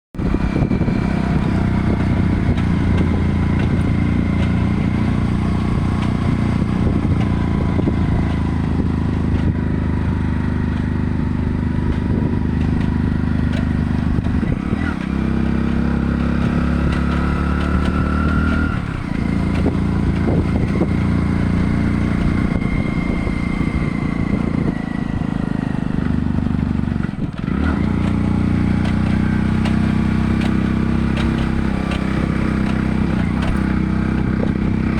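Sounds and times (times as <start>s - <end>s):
loud low engine drone: 0.2s - 34.9s.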